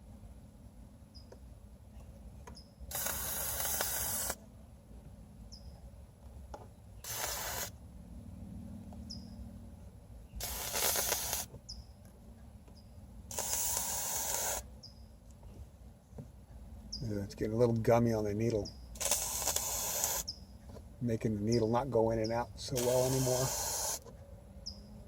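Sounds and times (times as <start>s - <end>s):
aerosol spray hissing: 2.9s - 4.4s, 7.0s - 7.7s, 10.4s - 11.5s, 13.3s - 14.6s, 19.0s - 20.3s, 22.7s - 24.1s.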